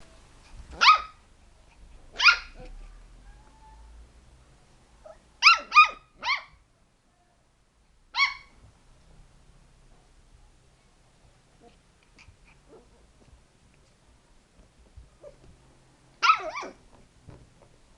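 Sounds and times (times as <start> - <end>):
dog barking: 0.8 - 1.2, 2.2 - 3.8, 5.1 - 6.5, 16.2 - 16.8.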